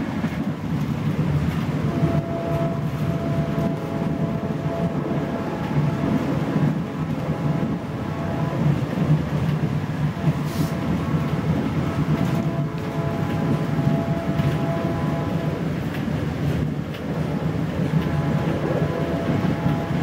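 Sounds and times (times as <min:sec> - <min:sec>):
train car rumbling on track: 0:00.0 - 0:20.0
short hiss: 0:10.4 - 0:10.8.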